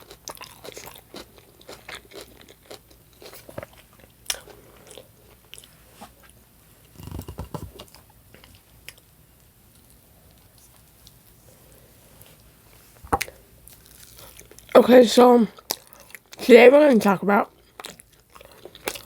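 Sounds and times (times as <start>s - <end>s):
person chewing food: 0.0s - 9.1s, 13.1s - 14.7s, 15.6s - 16.4s, 17.5s - 19.0s.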